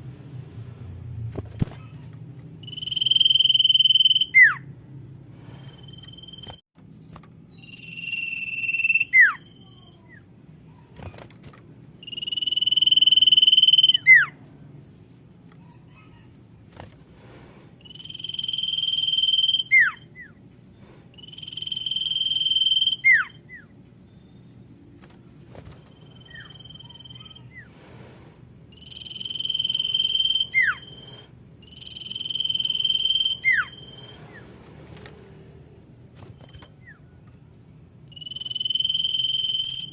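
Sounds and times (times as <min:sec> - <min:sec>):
bird whistling call: 0:02.6 - 0:04.6, 0:07.5 - 0:09.7, 0:12.0 - 0:14.4, 0:17.8 - 0:20.4, 0:21.2 - 0:23.7, 0:28.7 - 0:34.4, 0:38.1 - 0:39.9.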